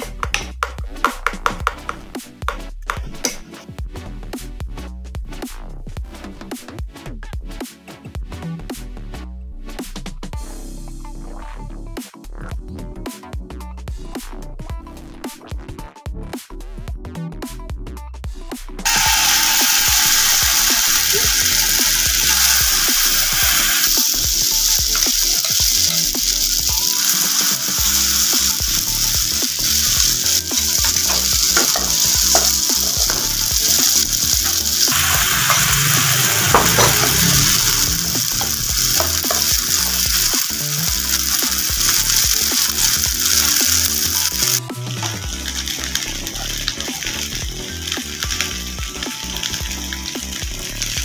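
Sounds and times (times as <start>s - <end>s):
patties sizzling in hot oil: 18.9s - 51.0s.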